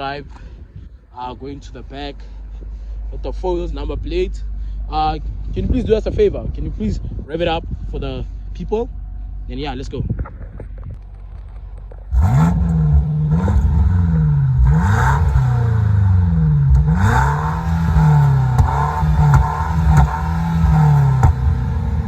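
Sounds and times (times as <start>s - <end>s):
car engine revving: 1.4s - 22.0s
sharp exhaust pops: 10.0s - 22.0s.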